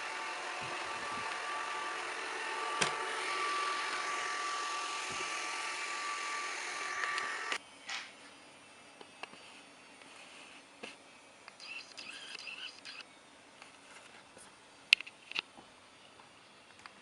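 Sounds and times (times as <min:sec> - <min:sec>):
robot vacuum motor whine: 0:00.0 - 0:07.6.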